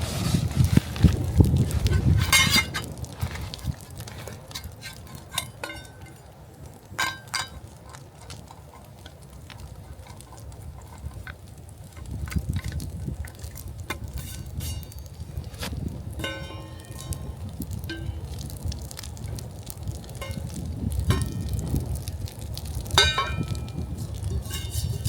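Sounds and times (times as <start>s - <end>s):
utensil scraping metal pot: 1.6s - 6.2s, 7.0s - 18.1s, 22.9s - 25.0s.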